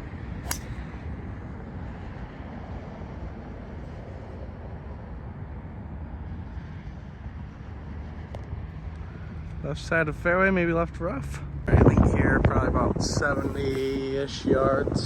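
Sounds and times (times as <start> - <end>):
golf club striking ball: 0.4 - 0.9
wind rumble on microphone: 11.5 - 15.0.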